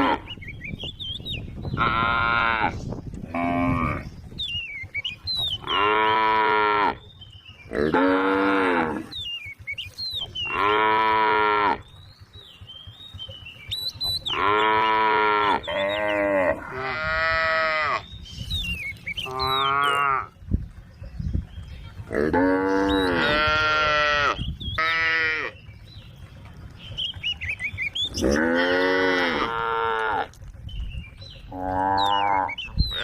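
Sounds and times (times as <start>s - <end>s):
cows mooing: 0.0s - 0.4s, 1.7s - 4.2s, 5.5s - 7.1s, 7.7s - 9.6s, 10.2s - 12.0s, 14.1s - 18.1s, 19.0s - 20.4s, 22.0s - 25.7s, 28.1s - 30.5s, 31.4s - 33.0s.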